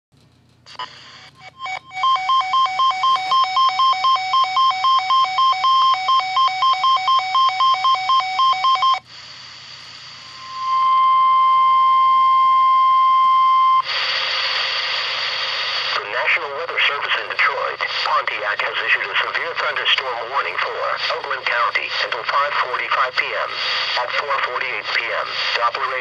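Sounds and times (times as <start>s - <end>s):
steady alarm tone: 1.2s - 9.1s, 10.0s - 14.0s
two-pitch alarm beeping: 1.4s - 9.0s, 10.2s - 13.8s.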